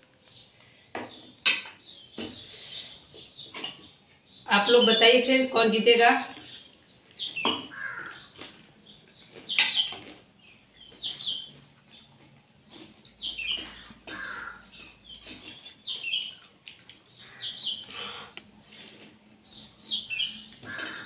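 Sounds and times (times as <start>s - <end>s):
small birds chirping: 0.0s - 21.0s
food crunching and slurping: 8.2s - 21.0s.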